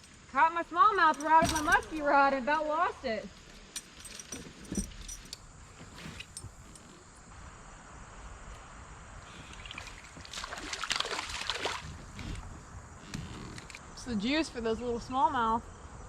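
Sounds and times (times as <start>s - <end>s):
water splashing around plastic hull: 9.5s - 12.4s.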